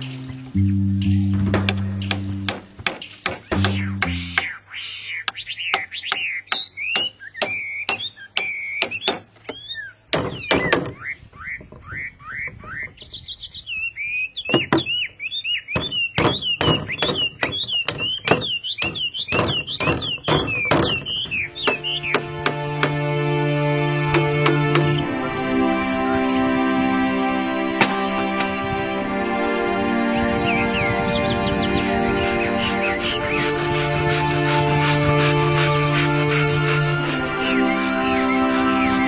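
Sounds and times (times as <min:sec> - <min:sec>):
bird chirping calls: 0:00.0 - 0:22.8, 0:27.5 - 0:39.0
sharp knocks: 0:01.4 - 0:04.6, 0:10.2 - 0:11.0, 0:15.8 - 0:23.0.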